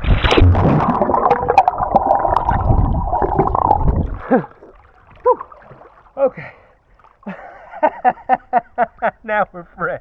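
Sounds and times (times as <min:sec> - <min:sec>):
water gurgling and sloshing: 0:00.0 - 0:09.8
breathy vocal sound: 0:06.2 - 0:06.8.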